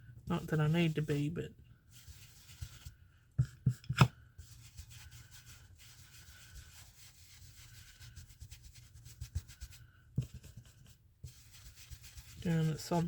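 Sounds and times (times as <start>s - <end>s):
brush scrubbing: 1.9s - 3.0s, 4.4s - 13.0s.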